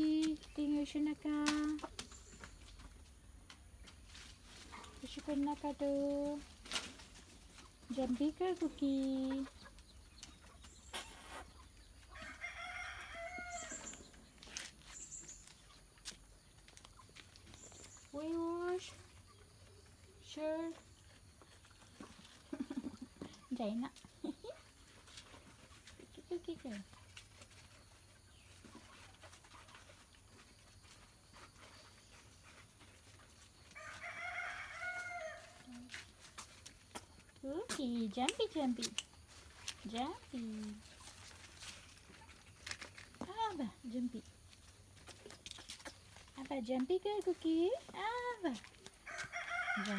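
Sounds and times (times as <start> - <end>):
rooster crowing: 12.1 - 13.9, 33.8 - 35.7, 49.0 - 49.9.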